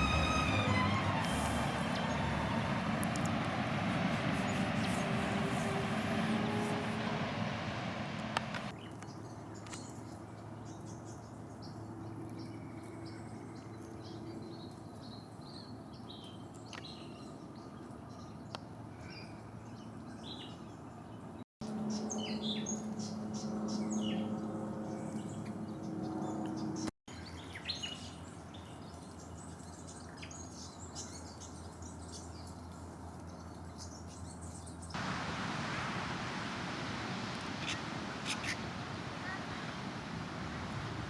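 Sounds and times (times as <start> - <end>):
birds chirping: 0.0 - 8.7, 27.6 - 41.0
steady low hum: 0.0 - 8.7.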